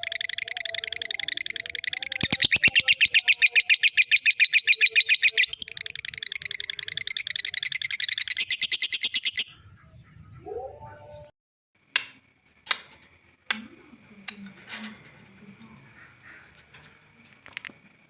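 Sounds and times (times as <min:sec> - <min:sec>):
lovebird chattering trill: 0:00.0 - 0:11.3.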